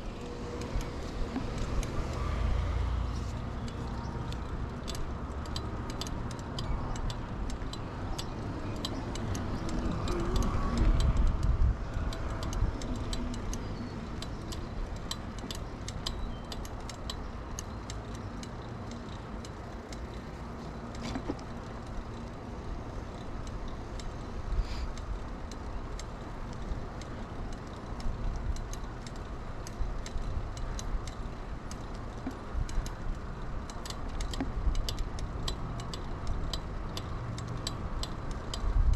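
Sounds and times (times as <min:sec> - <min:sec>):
low rumble of tyres and wind: 0:00.0 - 0:38.9
bicycle freewheel ticking: 0:03.4 - 0:38.9.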